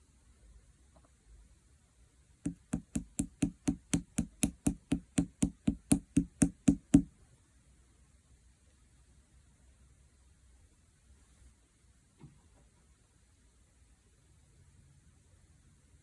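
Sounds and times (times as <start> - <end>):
rapid tapping on hard surface: 2.5 - 7.1.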